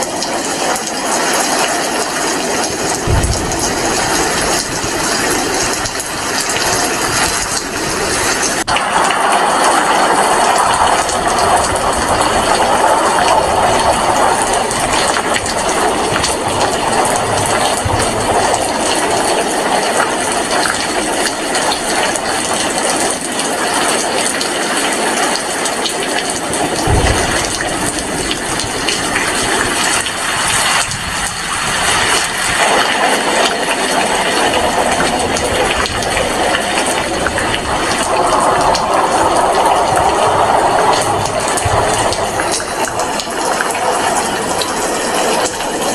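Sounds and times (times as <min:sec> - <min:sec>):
heavy rain falling: 0:00.0 - 0:45.9
low thump: 0:02.9 - 0:06.1, 0:26.8 - 0:29.9.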